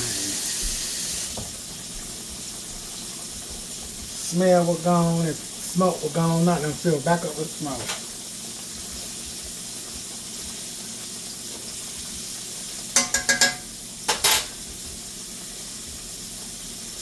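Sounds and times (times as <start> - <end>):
food sizzling in a pan: 0.0 - 17.0
metal utensil clinking on pan: 13.0 - 14.6.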